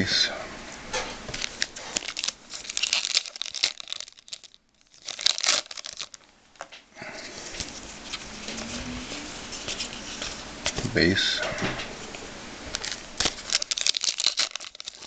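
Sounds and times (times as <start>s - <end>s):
foil wrapper crinkling and tearing: 1.3s - 6.7s, 12.7s - 15.0s.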